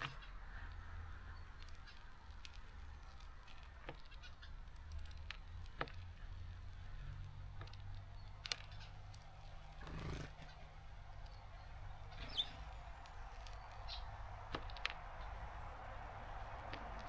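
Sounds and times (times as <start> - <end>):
birds pecking seeds at feeder: 0.0 - 17.0
high bird chirps: 8.1 - 16.8.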